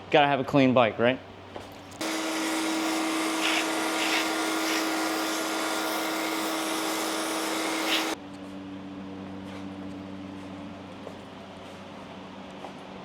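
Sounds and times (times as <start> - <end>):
pressure washer water jet hissing: 2.0 - 8.2
pump humming: 2.0 - 8.2.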